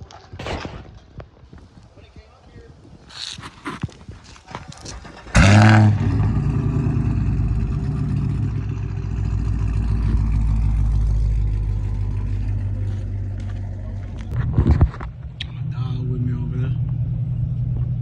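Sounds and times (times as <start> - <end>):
engine starting and idling: 4.5 - 12.8.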